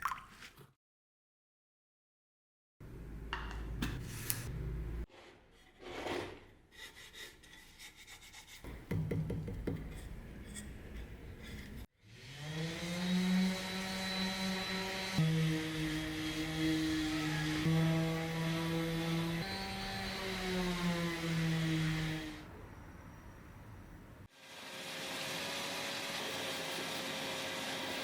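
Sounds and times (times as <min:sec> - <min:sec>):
electric tool motor running: 0:12.0 - 0:22.4, 0:24.3 - 0:28.0.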